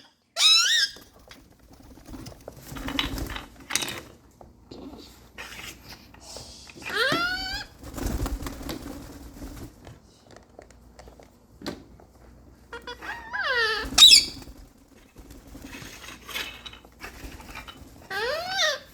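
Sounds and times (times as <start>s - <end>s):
parrot squawking: 0.0s - 1.0s, 6.8s - 7.7s, 12.7s - 14.4s, 18.1s - 18.9s.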